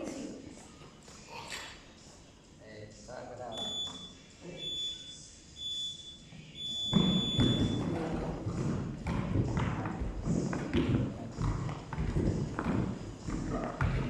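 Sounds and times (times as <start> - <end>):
countdown timer beeps: 3.5 - 7.8
footsteps of running group: 6.9 - 14.0.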